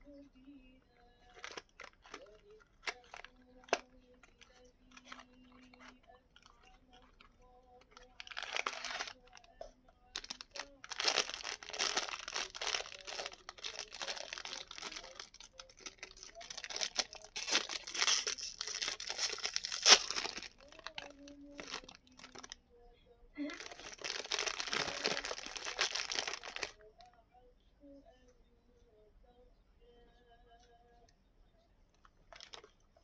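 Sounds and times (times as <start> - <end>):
plastic packaging crinkling and tearing: 1.2 - 22.6, 23.4 - 26.8, 32.3 - 32.7.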